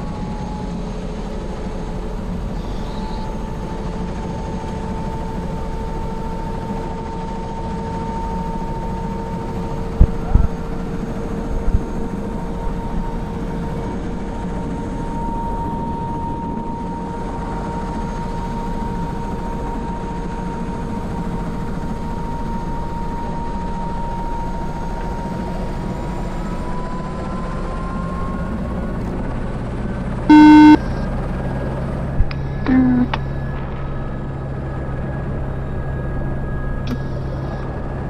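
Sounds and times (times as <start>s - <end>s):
helicopter turbine and rotor: 0.0s - 30.3s, 33.2s - 38.0s
loud electronic beep: 30.3s - 30.8s
thin rising whine: 30.3s - 30.8s.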